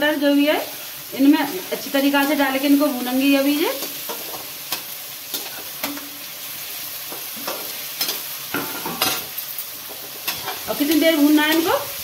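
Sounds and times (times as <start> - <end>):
vegetables sizzling in hot oil: 0.0 - 12.0
spatula scraping metal pan: 10.0 - 11.7.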